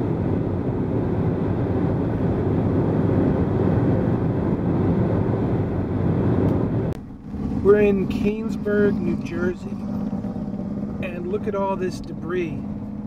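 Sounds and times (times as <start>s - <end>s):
car road noise from inside: 0.0s - 13.0s.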